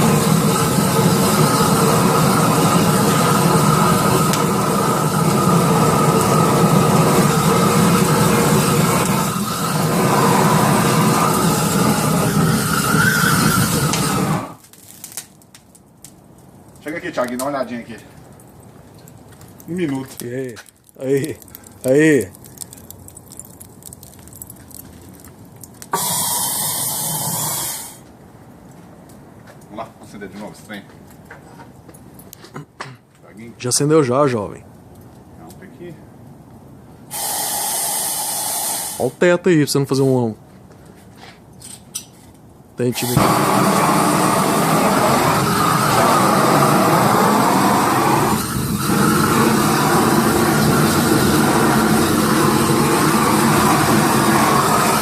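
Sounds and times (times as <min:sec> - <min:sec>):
motor running loudly: 0:00.0 - 0:14.5, 0:43.1 - 0:55.0
hissing spray: 0:00.0 - 0:14.6, 0:25.9 - 0:28.0, 0:37.1 - 0:39.2, 0:42.9 - 0:55.0.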